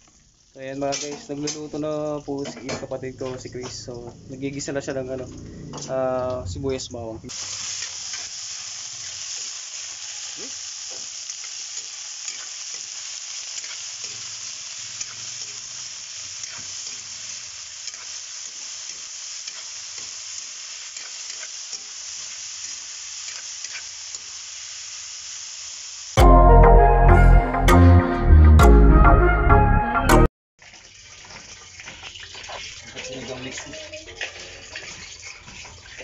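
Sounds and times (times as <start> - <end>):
meat sizzling in a wok: 0.0 - 6.0, 7.3 - 26.2, 30.6 - 36.0
metal spatula scraping pan: 31.2 - 36.0.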